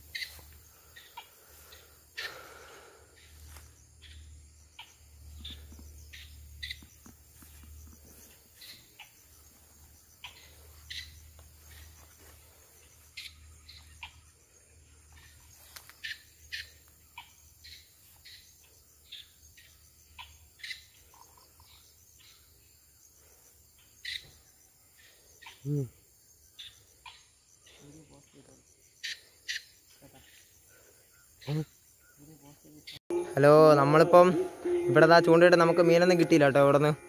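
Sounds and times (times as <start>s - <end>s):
high bird chirps: 0.0s - 1.3s, 3.2s - 12.1s.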